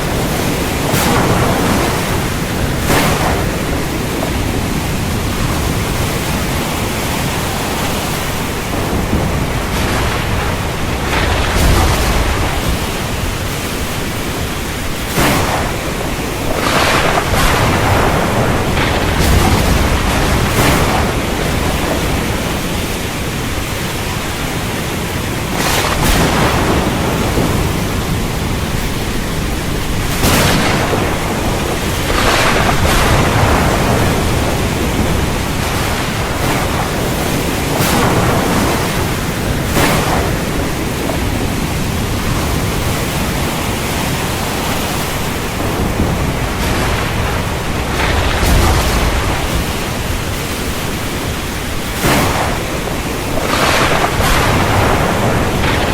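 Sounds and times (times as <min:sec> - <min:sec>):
heavy rain: 0:00.0 - 0:55.9
thunder rumbling: 0:00.0 - 0:55.9.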